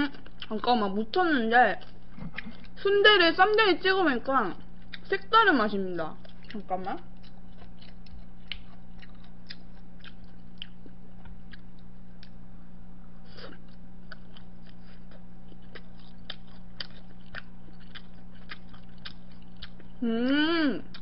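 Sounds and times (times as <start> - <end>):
steady low hum: 0.0 - 21.0
person chewing: 1.7 - 2.8, 4.6 - 5.1, 6.2 - 12.4, 13.3 - 21.0.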